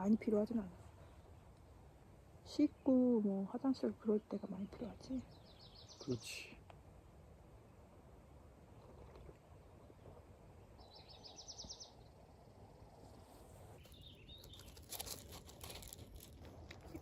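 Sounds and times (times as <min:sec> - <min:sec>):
low background hiss: 0:00.0 - 0:13.8
small bird chirping trill: 0:02.4 - 0:06.5, 0:09.9 - 0:13.2, 0:13.8 - 0:16.0
soft clicks and crunches: 0:13.8 - 0:17.0.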